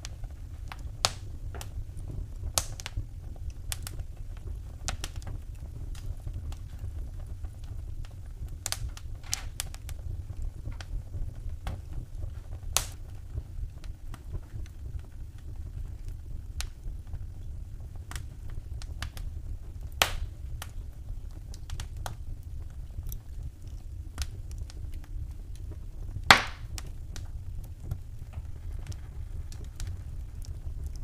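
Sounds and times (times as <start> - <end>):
low steady rumble: 0.0 - 31.0
wood fire crackling: 0.0 - 31.0
loud fire pop: 12.8 - 13.0, 20.0 - 20.4, 26.2 - 26.9.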